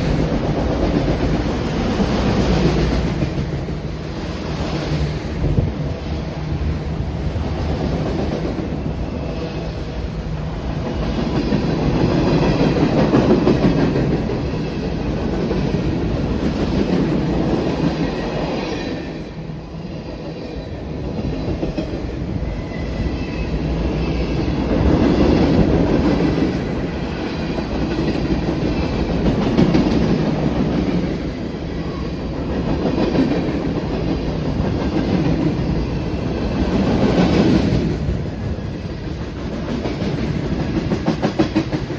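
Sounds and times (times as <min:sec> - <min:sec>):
train wheels rumbling on track: 0:00.0 - 0:41.9.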